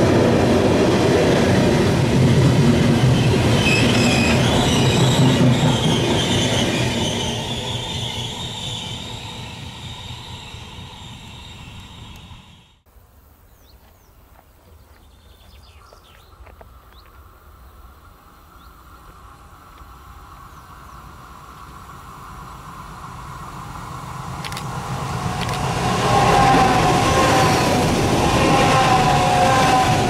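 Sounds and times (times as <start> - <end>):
train rumble: 0.0 - 12.9, 13.9 - 30.0
rail hum: 0.0 - 30.0
bird chirps: 13.5 - 17.2.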